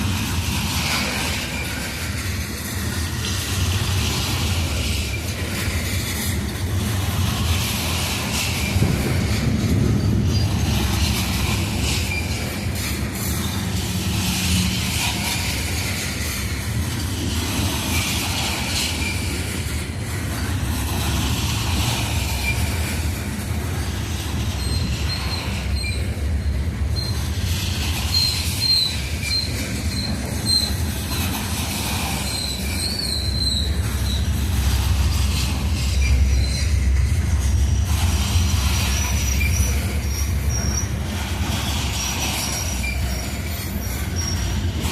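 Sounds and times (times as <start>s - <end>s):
train wheels rumbling on rail: 0.0s - 44.9s
high-pitched wheel squeal: 24.5s - 31.2s, 31.9s - 34.5s, 35.7s - 37.2s, 38.4s - 44.8s.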